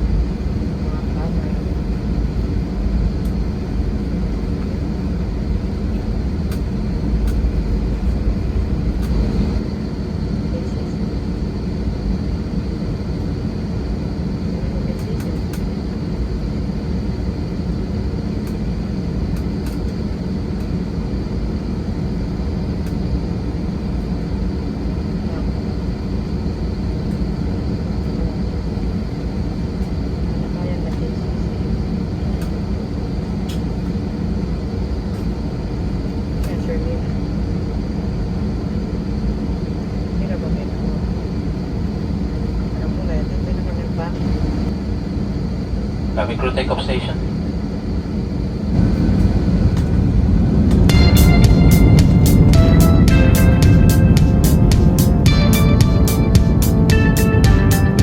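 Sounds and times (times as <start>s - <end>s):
airliner engines droning in cabin: 0.0s - 58.0s.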